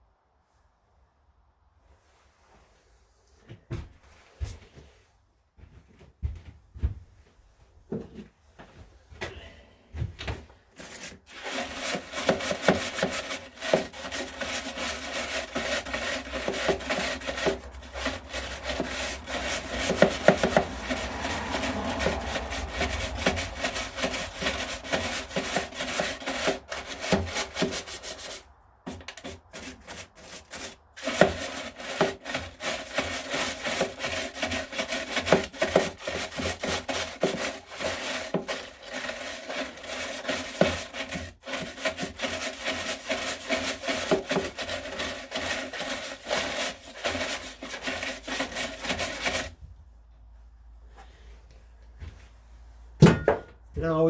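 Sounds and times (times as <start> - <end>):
rapid rasping scraping strokes: 10.7 - 49.6.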